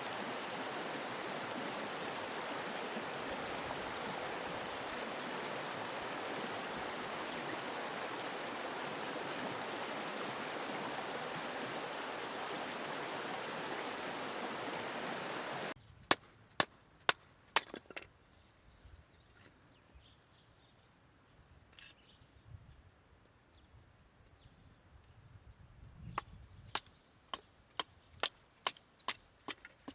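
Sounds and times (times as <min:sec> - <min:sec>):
stream rushing: 0:00.0 - 0:15.8.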